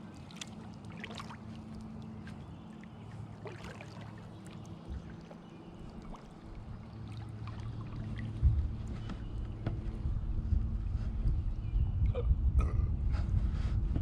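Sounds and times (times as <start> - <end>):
water dripping off paddle: 0.0 - 9.0
small splashes: 0.0 - 9.2
low rumble: 5.9 - 14.0.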